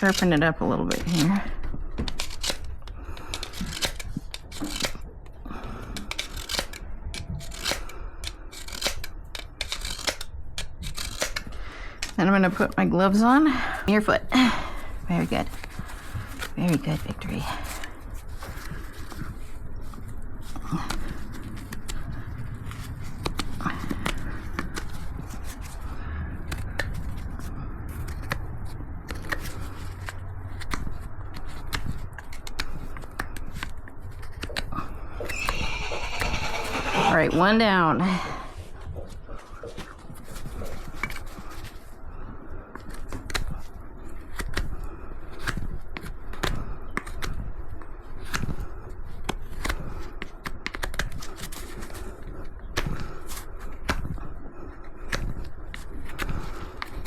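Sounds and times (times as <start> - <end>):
hoof knife scraping hoof: 35.2 - 38.3.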